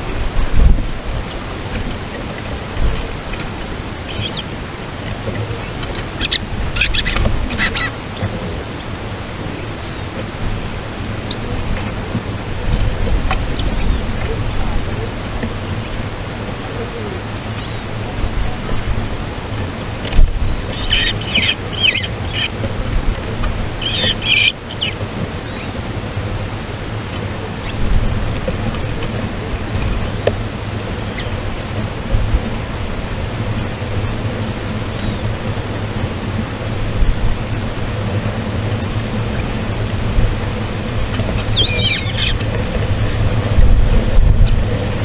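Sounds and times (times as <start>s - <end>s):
low background rumble: 0.0s - 45.0s
wind-like noise: 0.0s - 45.0s
songbirds chirping: 0.9s - 43.5s
bird chirps: 4.1s - 4.4s, 6.2s - 7.9s, 20.7s - 22.5s, 23.8s - 25.7s, 41.4s - 42.4s.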